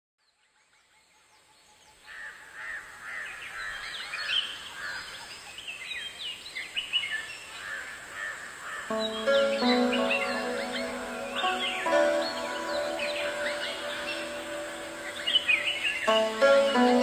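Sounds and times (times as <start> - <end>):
flock of birds calling: 7.6 - 17.0.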